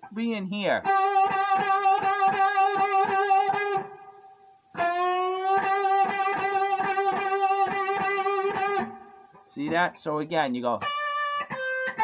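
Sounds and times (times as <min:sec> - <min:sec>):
electric guitar note bending: 0:00.8 - 0:09.4, 0:10.8 - 0:12.0.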